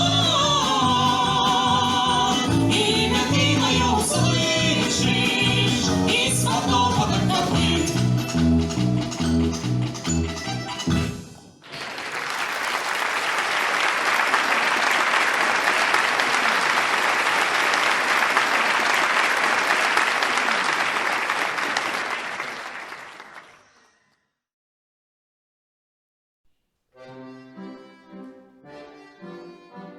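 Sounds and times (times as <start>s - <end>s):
audience applauding: 11.6s - 23.8s.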